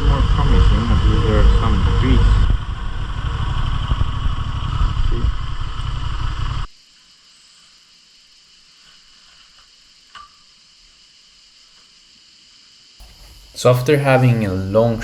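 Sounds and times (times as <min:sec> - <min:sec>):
motorcycle engine rumbling: 0:00.0 - 0:06.6
insects chirping: 0:05.6 - 0:15.0.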